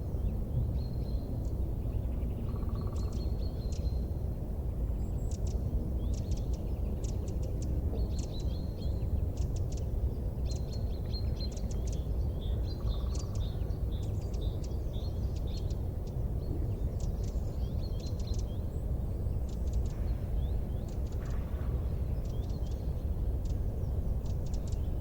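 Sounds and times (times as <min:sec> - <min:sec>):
steady low rumble: 0:00.0 - 0:25.0
small birds chirping: 0:04.8 - 0:25.0.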